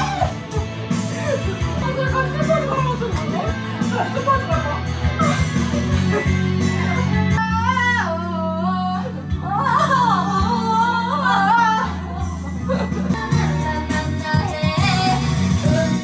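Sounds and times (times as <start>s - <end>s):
backing music: 0.0s - 16.0s
person singing: 5.2s - 16.0s.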